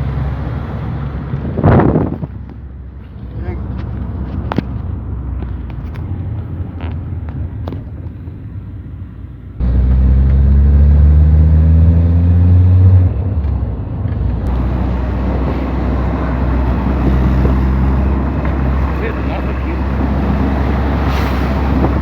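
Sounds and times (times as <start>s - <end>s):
road and wind noise: 0.0s - 22.0s
car engine accelerating: 9.6s - 22.0s.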